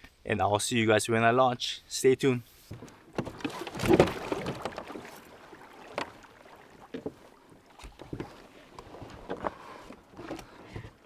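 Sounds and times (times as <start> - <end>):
knocks against kayak hull: 2.7 - 11.0
water splashing and lapping: 2.7 - 11.0.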